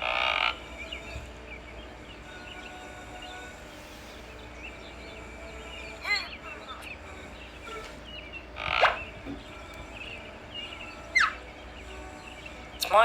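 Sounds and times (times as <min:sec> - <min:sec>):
birds chirping: 0:00.0 - 0:13.0
steady low hum: 0:00.0 - 0:13.0.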